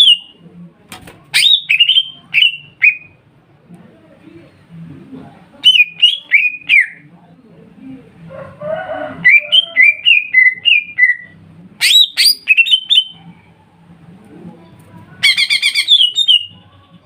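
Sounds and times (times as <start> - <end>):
bird singing whistled notes: 15.2 - 16.6.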